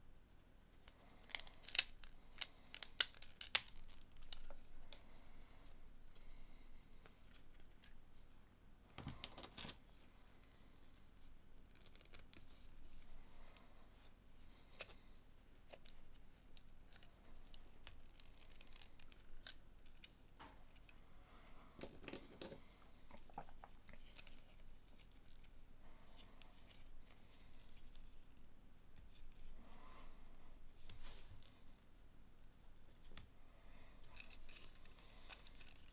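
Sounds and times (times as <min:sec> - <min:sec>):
plastic pieces clicking together: 0:01.2 - 0:04.6.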